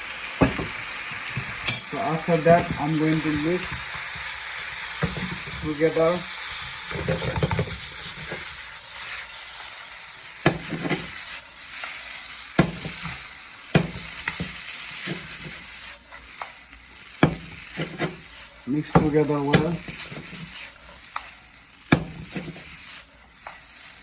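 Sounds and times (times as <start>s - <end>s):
food sizzling in a pan: 0.0s - 24.0s
utensil knocking against pan: 17.2s - 18.1s.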